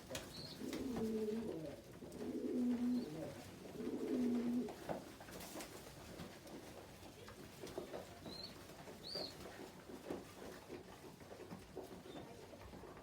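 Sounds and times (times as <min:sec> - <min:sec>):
pigeons cooing: 0:00.2 - 0:04.8.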